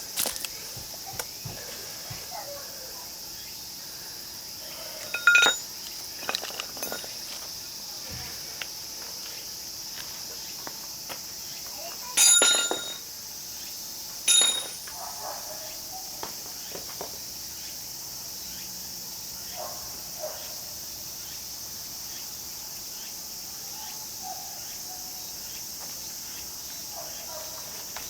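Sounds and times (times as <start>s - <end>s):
insects chirring: 0.0s - 28.0s
sharp metallic clanks: 5.0s - 7.2s, 12.2s - 13.0s, 14.3s - 14.9s.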